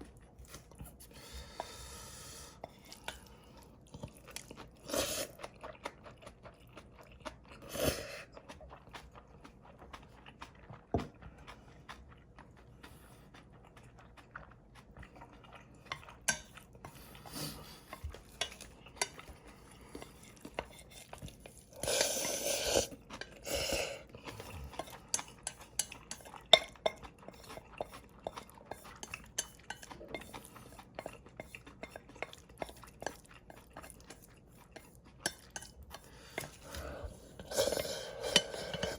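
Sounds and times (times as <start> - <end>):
chewing: 0.0 - 38.9
cutlery scraping a dish: 15.9 - 17.0, 17.8 - 19.4, 20.0 - 23.8, 24.7 - 38.9.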